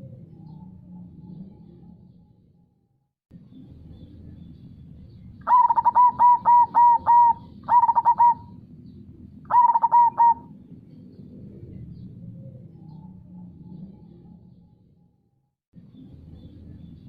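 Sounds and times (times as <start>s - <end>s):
dove cooing: 5.4s - 8.6s, 9.5s - 10.6s.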